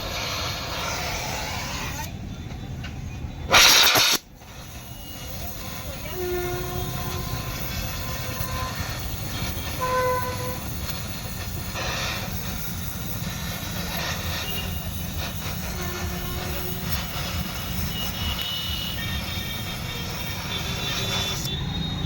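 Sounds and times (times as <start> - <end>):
short horn tones: 5.2 - 10.7.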